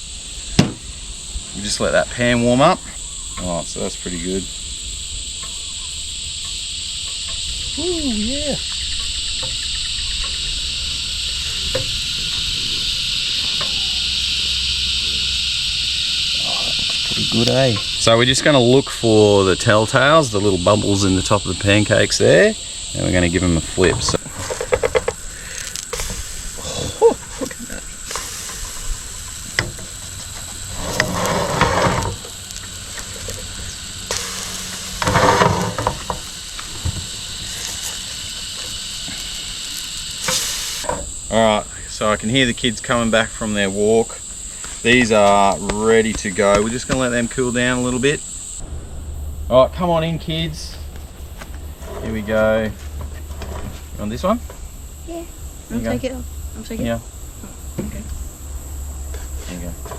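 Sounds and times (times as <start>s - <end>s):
buzzing insect chorus: 0.0s - 59.9s
pancakes sizzling in a pan: 3.0s - 48.6s.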